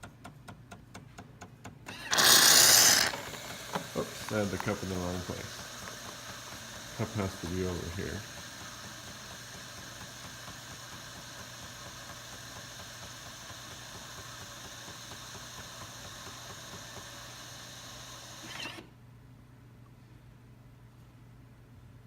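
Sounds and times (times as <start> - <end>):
espresso machine whirring hiss: 1.9 - 18.9.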